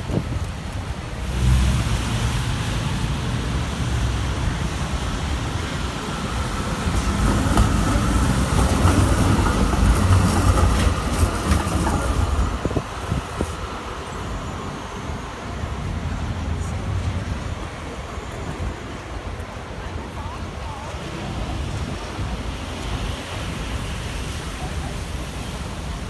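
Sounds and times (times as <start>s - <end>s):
tram wheels rumbling on rail: 0.0s - 26.0s
wheels clacking over rail joints: 5.8s - 14.4s.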